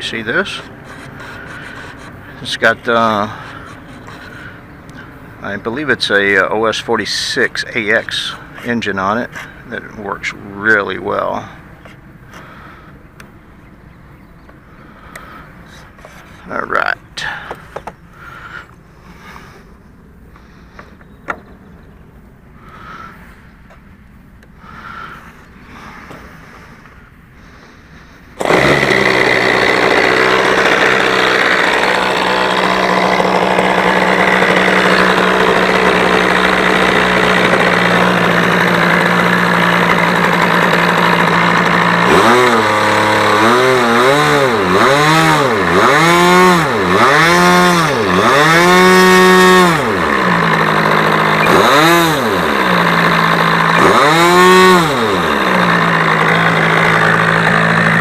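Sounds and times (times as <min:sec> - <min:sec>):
model airplane engine revving: 0:28.4 - 0:58.0.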